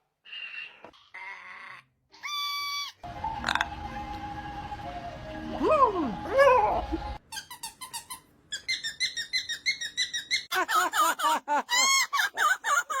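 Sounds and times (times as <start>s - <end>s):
parrot chirping: 7.1s - 10.5s.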